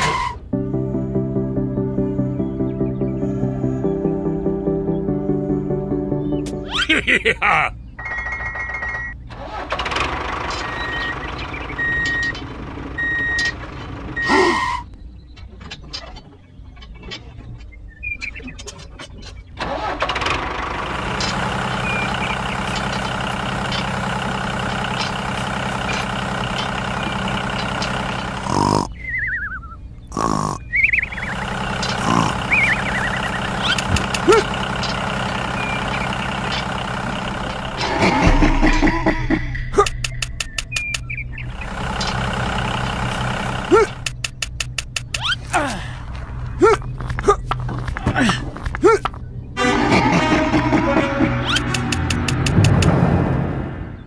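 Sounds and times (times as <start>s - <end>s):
motor hum: 7.8s - 15.2s, 19.5s - 54.0s
tractor engine idling: 9.2s - 14.7s, 19.6s - 28.6s, 31.0s - 53.0s
reversing alarm beeping: 10.7s - 12.4s, 13.0s - 13.6s.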